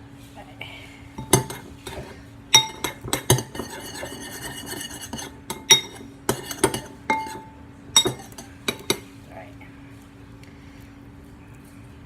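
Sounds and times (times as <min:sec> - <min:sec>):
slime scraping and stirring: 0:01.2 - 0:09.1
utensil clinking against a bowl: 0:01.2 - 0:09.2.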